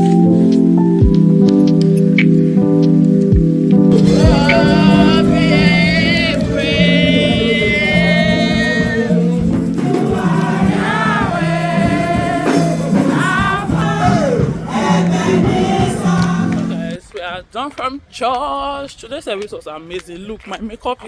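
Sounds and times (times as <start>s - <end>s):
sustained low accompaniment notes: 2.6s - 17.0s
voices singing gospel: 3.9s - 18.5s.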